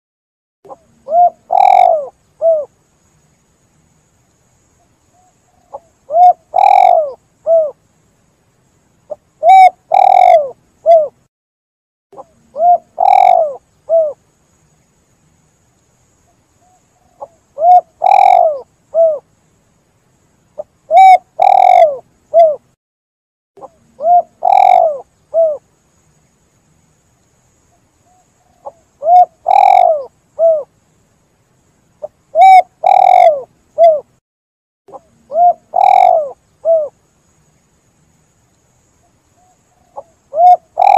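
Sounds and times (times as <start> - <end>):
spotted dove cooing: 0.7 - 2.7, 5.2 - 7.8, 9.1 - 11.2, 12.2 - 14.2, 16.6 - 19.2, 20.6 - 22.6, 23.6 - 25.6, 28.1 - 30.7, 32.3 - 34.1, 34.9 - 37.0, 39.4 - 40.9.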